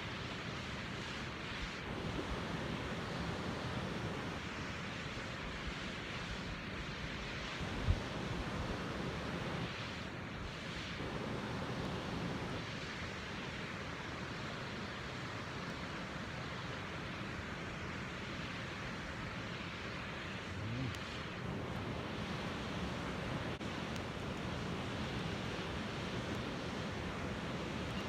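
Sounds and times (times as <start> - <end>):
waterfall rushing: 20.1 - 28.0.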